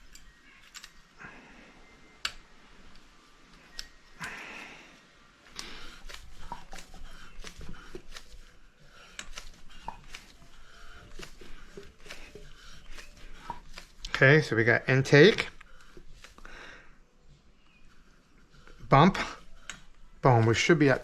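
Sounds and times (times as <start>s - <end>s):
metal tools clicking and knocking: 0.0s - 1.1s.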